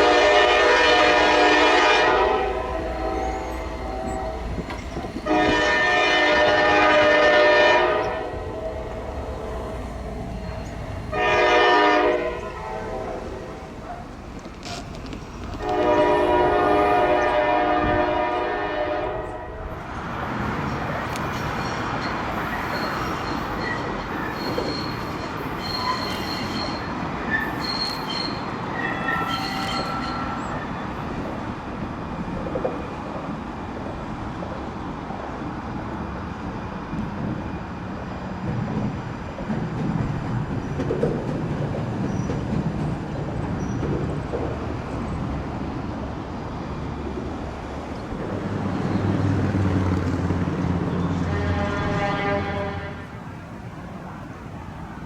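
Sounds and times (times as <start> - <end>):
locomotive horn blasts: 0.0 - 9.1, 11.1 - 13.8, 15.6 - 19.7, 51.1 - 53.2
train rolling by rumbling: 0.0 - 55.0
high-pitched wheel squeal: 21.6 - 30.9.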